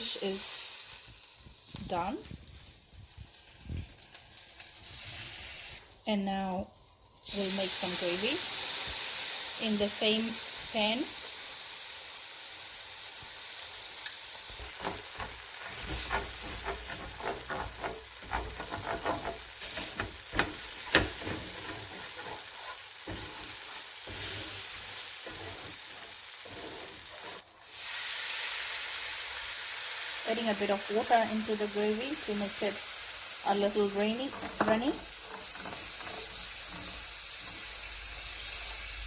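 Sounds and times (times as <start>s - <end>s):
frying pan sizzling: 0.0s - 39.0s
utensil scraping a pan: 14.6s - 27.5s, 33.8s - 37.8s.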